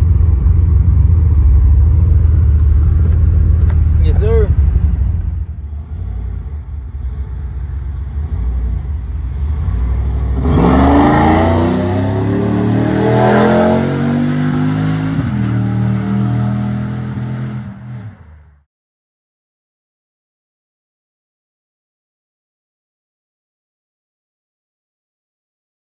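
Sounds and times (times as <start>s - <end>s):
car engine revving under throttle: 0.1s - 18.5s.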